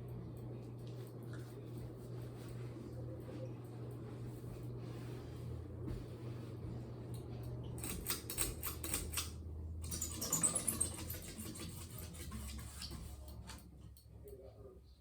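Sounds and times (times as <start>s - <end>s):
ceiling fan humming: 0.0s - 15.0s
fan rapid clicking: 7.1s - 14.5s.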